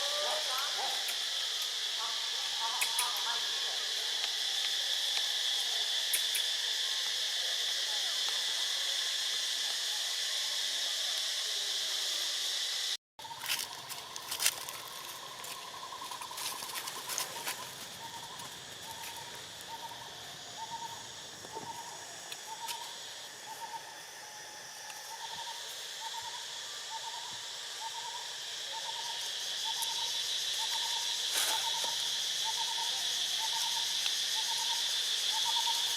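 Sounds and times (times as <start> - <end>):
high drone of insects: 0.0 - 35.9.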